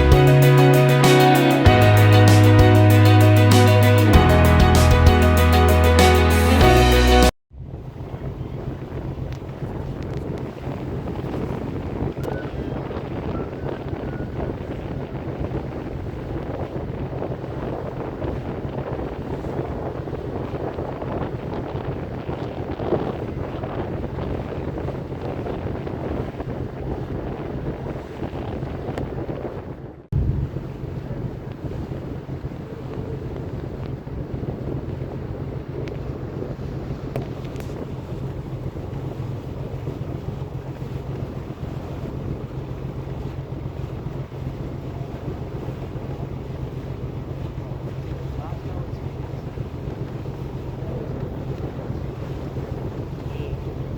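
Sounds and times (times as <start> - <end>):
ferry engine humming: 0.0 - 18.6, 30.2 - 53.9
wind buffeting microphone: 7.5 - 53.9.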